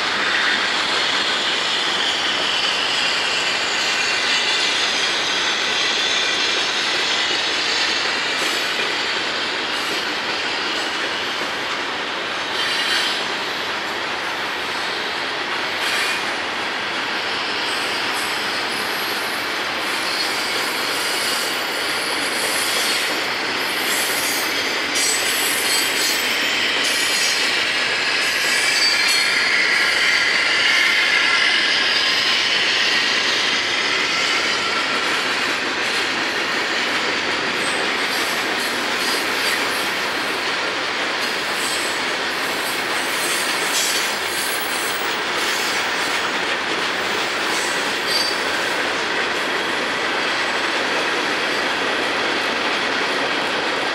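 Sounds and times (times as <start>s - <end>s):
freight train wheels rumbling: 0.0s - 53.9s
high wheel squeal: 17.4s - 35.2s, 47.0s - 48.7s.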